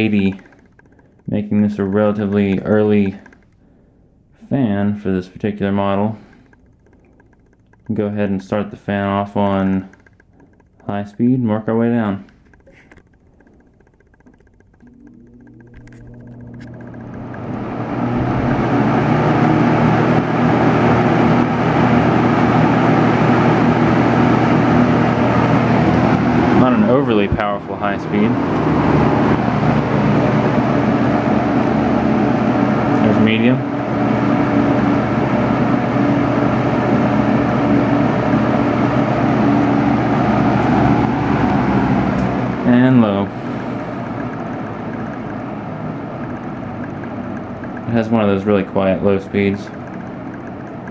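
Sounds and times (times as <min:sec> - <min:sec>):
box fan motor hum: 0:00.0 - 0:50.9
rush of air from fan: 0:16.2 - 0:50.9.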